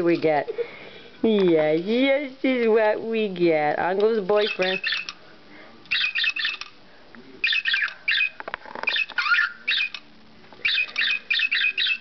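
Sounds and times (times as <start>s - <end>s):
budgerigar chirping and squawking: 4.4s - 5.1s, 5.9s - 6.7s, 7.4s - 10.0s, 10.6s - 12.0s.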